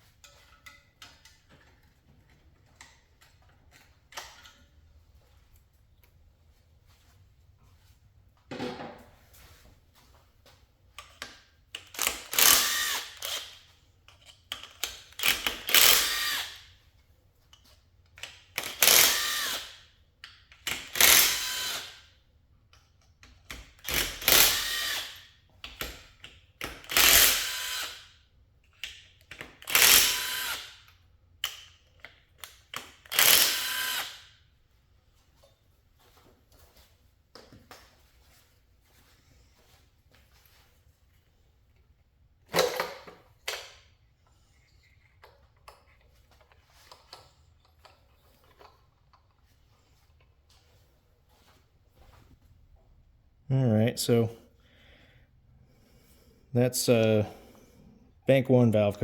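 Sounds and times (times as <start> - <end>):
power drill whining bursts: 12.0 - 13.6, 15.2 - 16.7, 18.6 - 19.8, 20.8 - 22.0, 23.8 - 25.2, 26.8 - 28.0, 29.6 - 30.9, 33.1 - 34.3.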